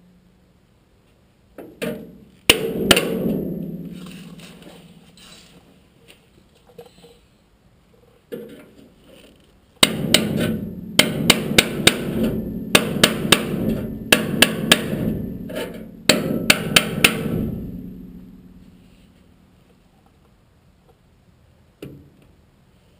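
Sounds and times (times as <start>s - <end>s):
hammer on sheet steel: 1.8s - 5.1s, 9.8s - 18.8s.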